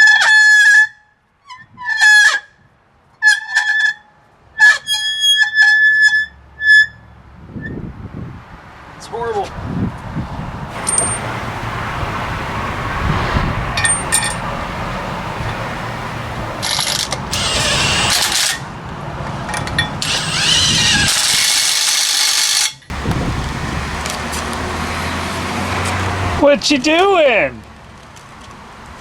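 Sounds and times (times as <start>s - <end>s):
pneumatic air hammer: 10.7s - 11.7s, 16.6s - 18.7s, 19.5s - 22.9s.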